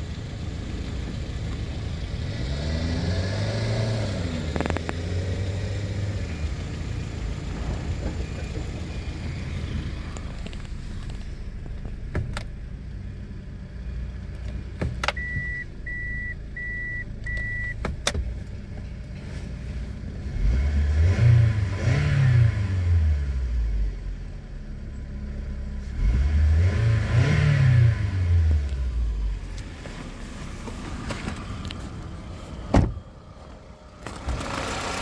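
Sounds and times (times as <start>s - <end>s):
car engine idling and revving: 0.0s - 35.0s
short electronic beeps: 15.2s - 17.8s.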